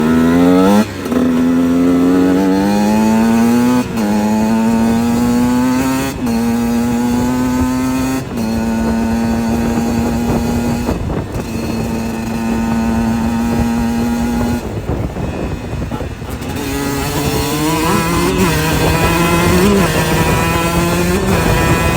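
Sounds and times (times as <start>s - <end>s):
motocross bike accelerating: 0.0s - 21.9s.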